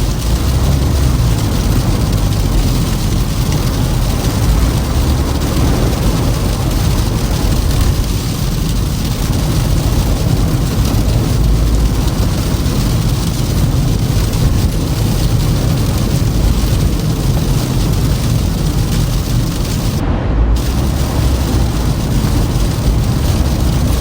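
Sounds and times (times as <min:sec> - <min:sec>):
tyres and engine rumble: 0:00.0 - 0:24.0
tyre hiss on snow: 0:20.6 - 0:24.0.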